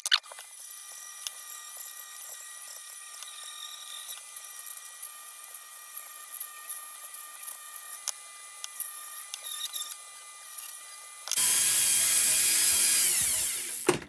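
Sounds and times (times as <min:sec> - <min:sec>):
small power tool running: 0:00.2 - 0:14.0.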